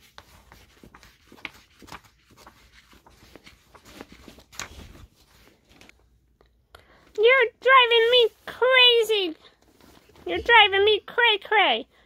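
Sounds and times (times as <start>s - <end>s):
book pages rustling: 0.0s - 6.2s, 7.7s - 10.6s.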